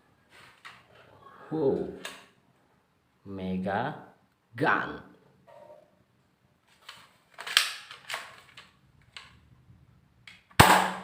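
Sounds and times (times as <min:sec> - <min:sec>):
toy gun snapping and clicking: 0:07.4 - 0:08.7.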